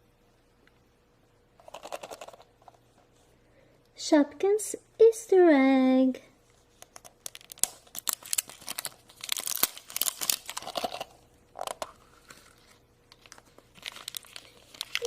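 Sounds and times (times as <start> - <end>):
wrapper tearing and crinkling: 7.0 - 15.0.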